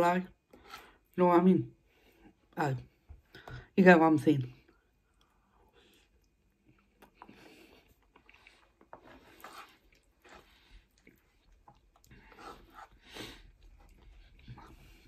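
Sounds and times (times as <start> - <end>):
wet chewing: 5.1 - 15.0.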